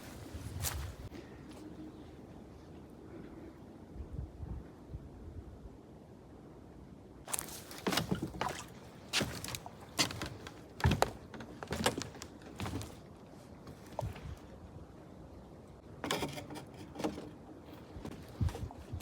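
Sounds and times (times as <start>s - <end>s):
footsteps: 0.0s - 1.1s, 7.3s - 13.0s.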